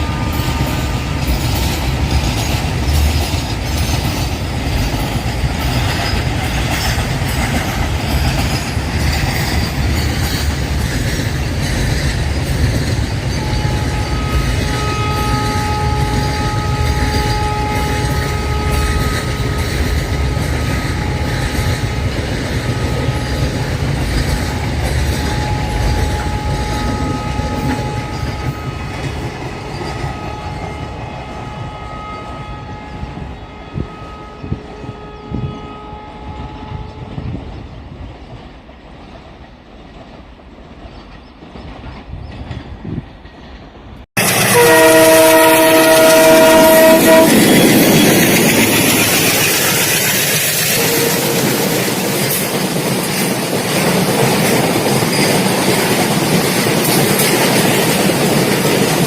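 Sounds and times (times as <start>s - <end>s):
wheels squealing on rails: 0.0s - 38.3s, 40.8s - 59.0s
freight train rumbling: 0.0s - 59.0s
wheels clicking over rail joints: 39.0s - 59.0s.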